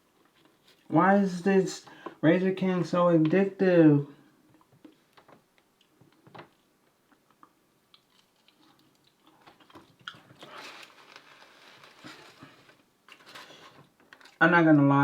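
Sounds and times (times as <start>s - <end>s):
chewing fried food: 4.5s - 14.4s.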